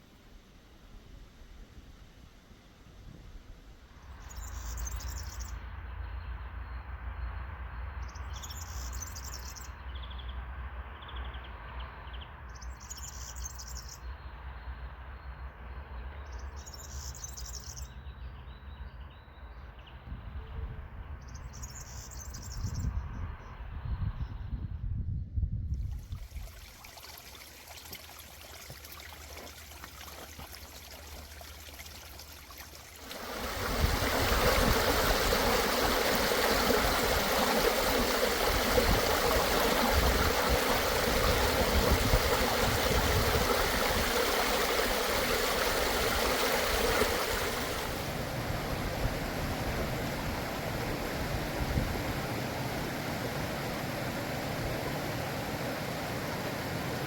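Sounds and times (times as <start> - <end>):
stream flowing over rocks: 25.9 - 57.0.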